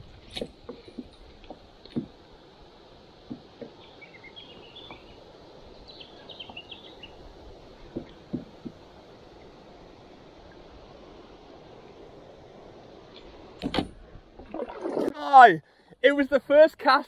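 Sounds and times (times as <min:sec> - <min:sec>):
outdoor hiss: 0:00.0 - 0:17.0
birds chirping: 0:03.5 - 0:07.2
kayak knocks and splashes: 0:07.8 - 0:08.8.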